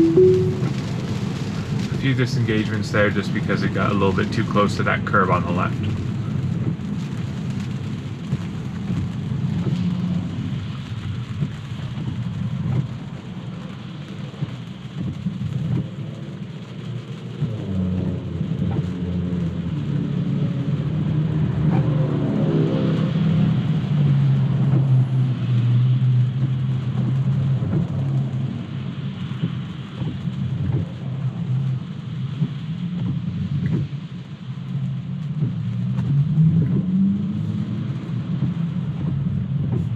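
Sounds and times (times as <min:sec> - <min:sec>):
pitched hum: 0:00.0 - 0:01.0
rain and spray hiss: 0:00.0 - 0:39.9
tyres on wet pavement: 0:00.6 - 0:39.9.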